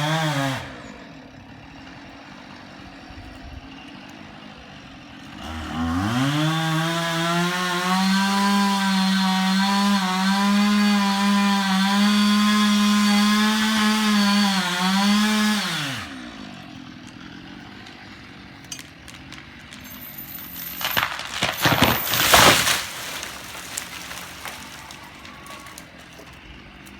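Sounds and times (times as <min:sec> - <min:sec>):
chainsaw revving: 0:00.0 - 0:26.9
loud crashing noise: 0:19.8 - 0:26.2.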